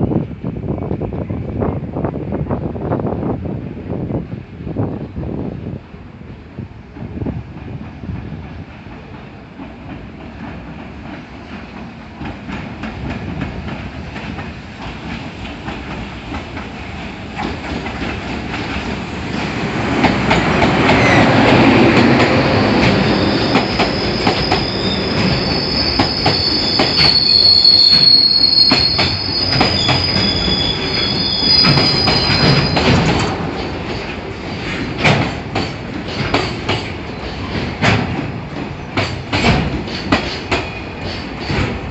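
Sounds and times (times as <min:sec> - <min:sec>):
train wheels clicking over joints: 0:07.0 - 0:41.9
wheels squealing: 0:21.0 - 0:33.2.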